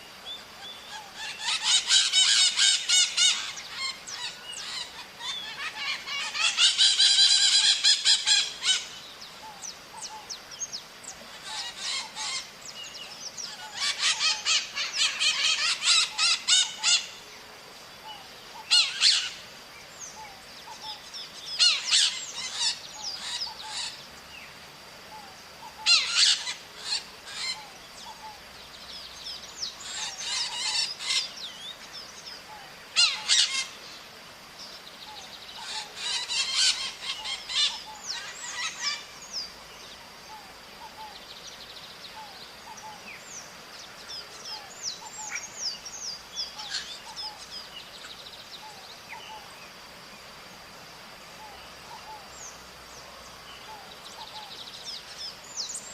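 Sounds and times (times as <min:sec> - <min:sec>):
parrots calling: 0:00.8 - 0:09.0, 0:11.3 - 0:12.5, 0:13.5 - 0:17.2, 0:18.6 - 0:19.4, 0:21.6 - 0:24.0, 0:25.6 - 0:28.4, 0:29.8 - 0:31.4, 0:32.5 - 0:33.8, 0:35.6 - 0:39.1.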